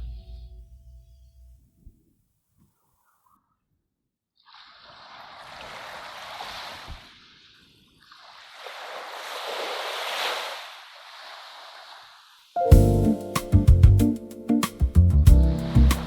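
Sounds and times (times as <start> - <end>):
rushing surf: 8.4 - 12.6.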